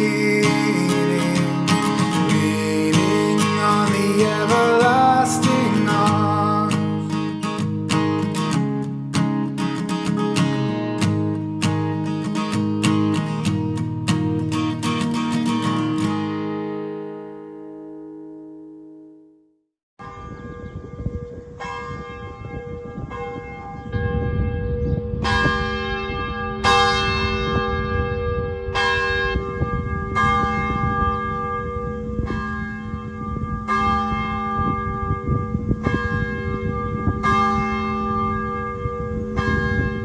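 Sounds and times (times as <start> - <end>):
church bell ringing: 20.0 - 40.0.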